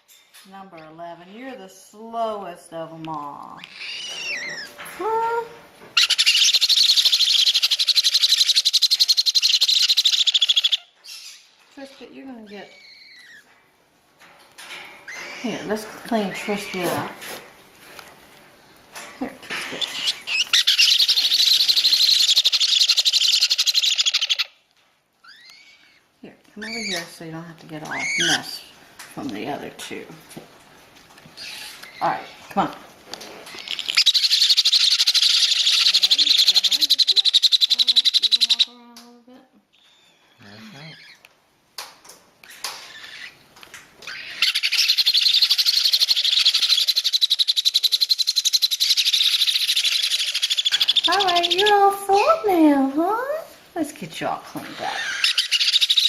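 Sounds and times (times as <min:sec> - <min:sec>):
baby parrot begging call: 0:06.0 - 0:10.8, 0:26.6 - 0:27.1, 0:33.6 - 0:38.8, 0:44.1 - 0:51.8.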